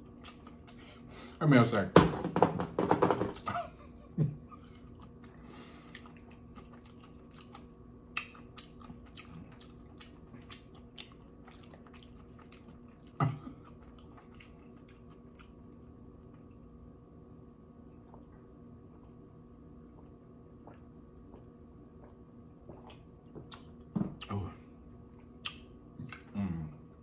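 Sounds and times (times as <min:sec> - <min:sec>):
mouth chewing wetly: 0:04.6 - 0:15.6, 0:19.9 - 0:24.3.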